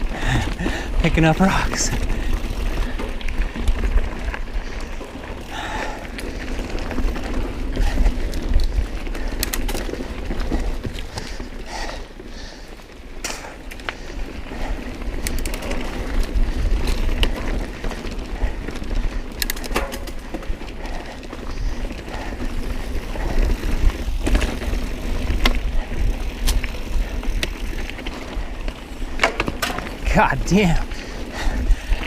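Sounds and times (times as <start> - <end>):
bike tyres rumbling: 0.0 - 32.0
bike clattering on rocks: 19.4 - 20.4, 29.1 - 30.0.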